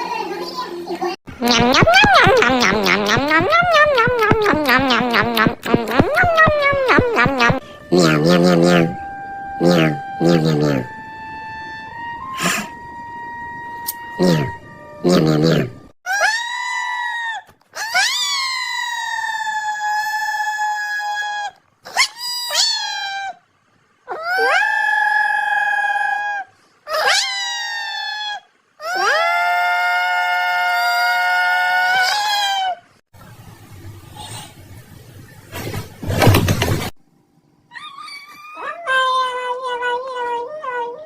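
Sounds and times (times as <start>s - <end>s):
dog howling: 37.7s - 41.0s.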